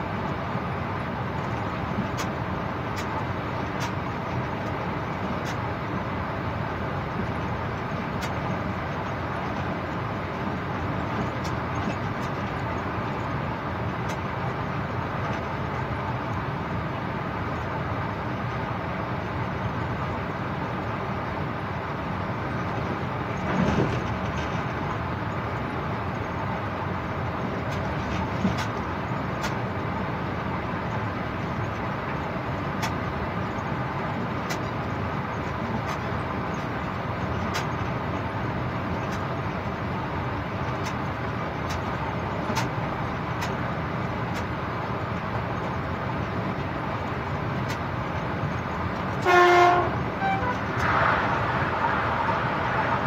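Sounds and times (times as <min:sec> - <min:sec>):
train running noise: 0:00.0 - 0:53.0
train horn toot: 0:49.2 - 0:50.8.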